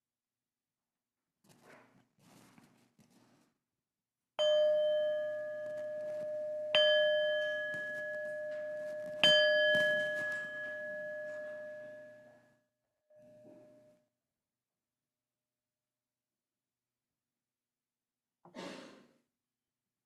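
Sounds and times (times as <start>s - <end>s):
bell ringing: 4.4s - 12.4s.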